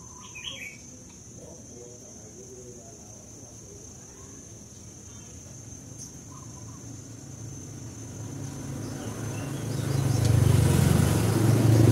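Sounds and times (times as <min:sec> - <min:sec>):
insect trill: 0:00.0 - 0:11.9
vehicle engine rumble: 0:06.6 - 0:11.9.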